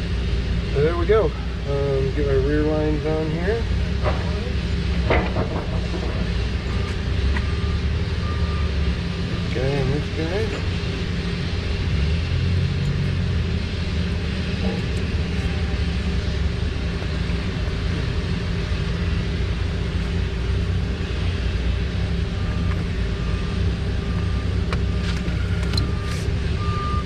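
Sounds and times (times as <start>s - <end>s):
low engine rumble: 0.0s - 27.0s
reversing alarm beeping: 5.8s - 10.7s, 22.5s - 27.0s.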